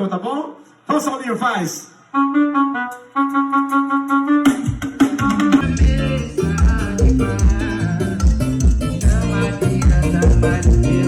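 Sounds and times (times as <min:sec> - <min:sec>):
plucked guitar dance music: 0:04.5 - 0:11.0.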